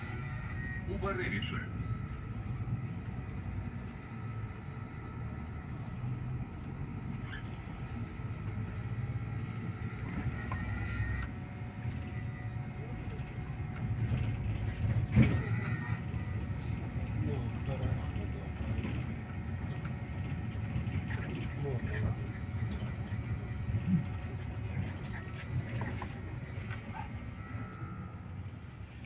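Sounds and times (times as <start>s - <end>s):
bus engine and road rumble: 0.0s - 29.0s
faint high whine: 21.6s - 29.0s.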